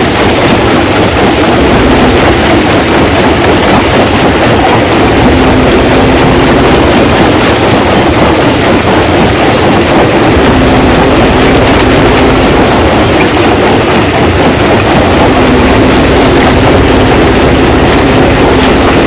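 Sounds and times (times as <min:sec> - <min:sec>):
rocks rattling and clattering: 0:00.0 - 0:19.0
stone crushing machine running: 0:00.0 - 0:19.0.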